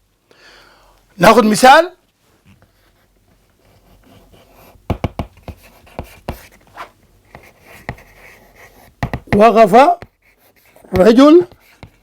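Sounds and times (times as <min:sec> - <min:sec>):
chalk tapping and scratching on board: 0:03.6 - 0:12.0.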